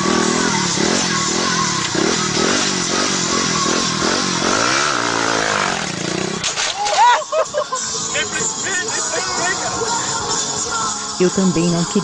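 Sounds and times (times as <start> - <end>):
scooter engine revving: 0.0 - 6.5.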